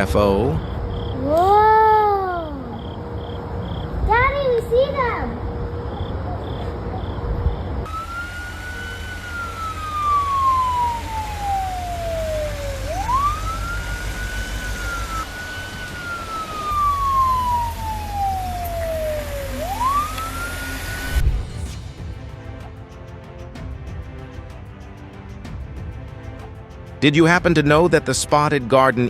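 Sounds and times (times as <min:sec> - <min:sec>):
siren wailing: 0:05.4 - 0:21.6
steady low rumble: 0:09.8 - 0:24.6.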